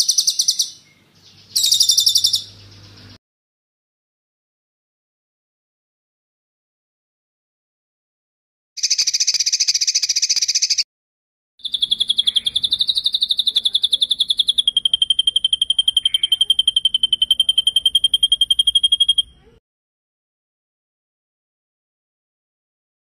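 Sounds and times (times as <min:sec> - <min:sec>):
songbird trilling: 0:00.0 - 0:03.2, 0:08.8 - 0:10.8, 0:11.6 - 0:19.6.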